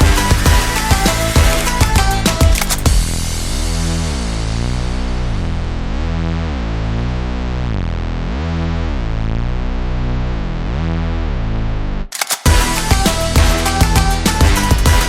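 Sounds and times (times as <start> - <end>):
sharp beats: 0.0 - 3.8, 12.1 - 15.0
electronic music with synthesizer: 0.0 - 5.1, 12.5 - 15.0.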